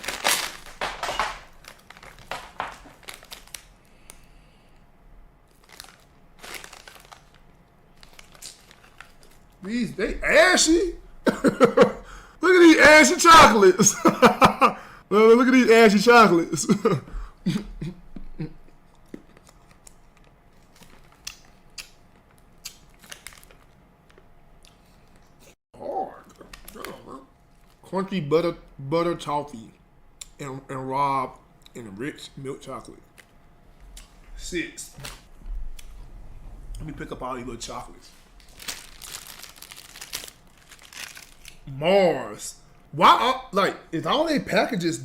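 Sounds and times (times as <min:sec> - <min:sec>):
plastic wrapper crinkling: 0:00.0 - 0:04.3, 0:05.4 - 0:09.6, 0:19.0 - 0:24.3, 0:38.1 - 0:41.7
chocolates being handled and eaten: 0:00.0 - 0:09.8, 0:18.7 - 0:27.9, 0:38.3 - 0:41.8.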